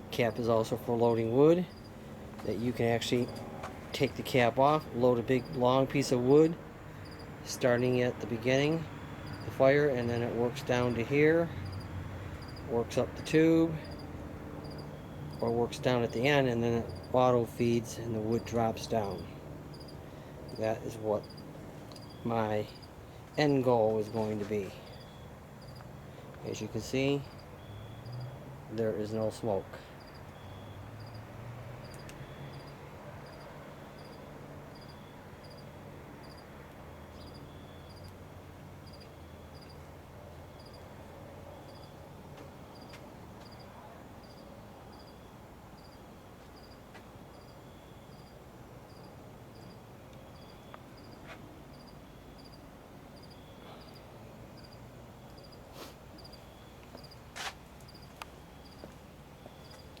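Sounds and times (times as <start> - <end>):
cricket chirping: 1.6 - 2.5, 3.1 - 5.7, 6.9 - 7.4, 8.6 - 12.7, 13.8 - 17.2, 18.3 - 23.5, 24.2 - 26.3, 27.1 - 28.4, 30.0 - 38.2, 38.8 - 39.9, 40.5 - 40.9, 41.5 - 42.1, 42.7 - 60.0.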